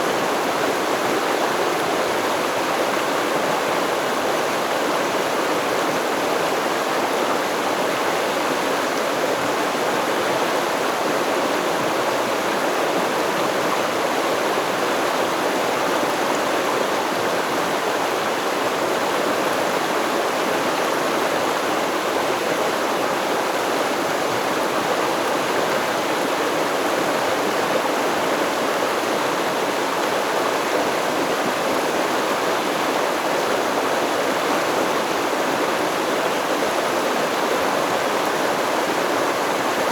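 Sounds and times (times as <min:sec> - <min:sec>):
flowing stream: 0:00.0 - 0:39.9.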